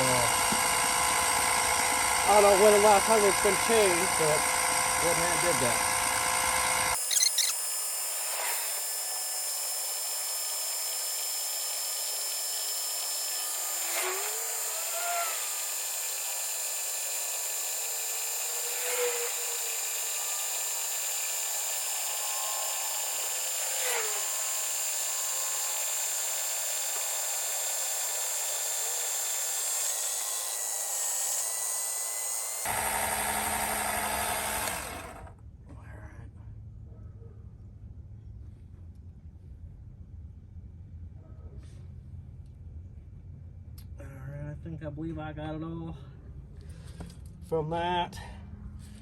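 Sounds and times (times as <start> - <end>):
electric pump whining: 0.0 - 35.4.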